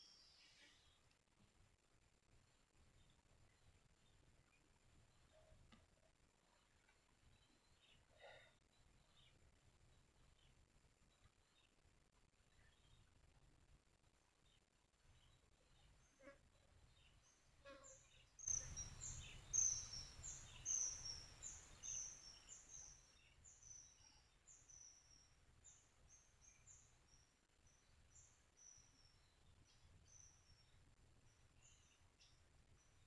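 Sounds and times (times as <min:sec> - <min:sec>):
soft hiss: 0:08.8 - 0:33.0
bird calling: 0:18.5 - 0:22.3.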